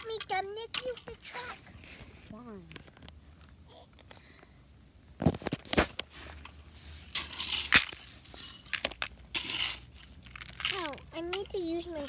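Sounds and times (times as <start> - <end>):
scraping and crunching in loose fill: 5.2 - 12.0.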